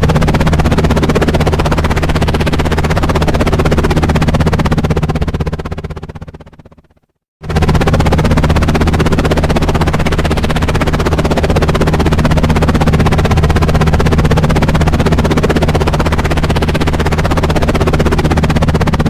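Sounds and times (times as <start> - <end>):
helicopter rotor chopping: 0.0 - 19.0.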